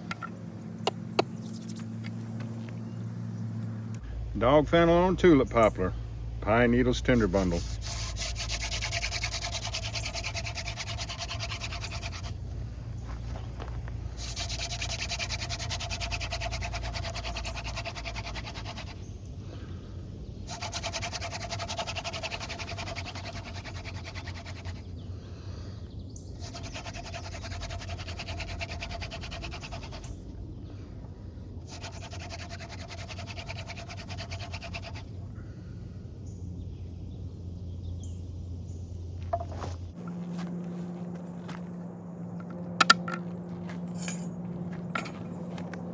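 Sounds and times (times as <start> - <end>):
wooden spindle rubbing in notch: 7.2 - 12.4, 14.2 - 19.0, 20.5 - 24.8, 26.4 - 30.2, 31.6 - 35.1.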